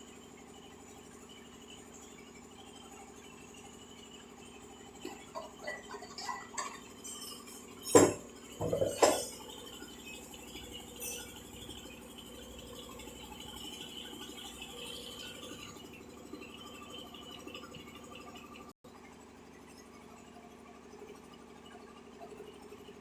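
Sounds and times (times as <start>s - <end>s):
hard objects clinking and knocking: 6.4s - 9.4s.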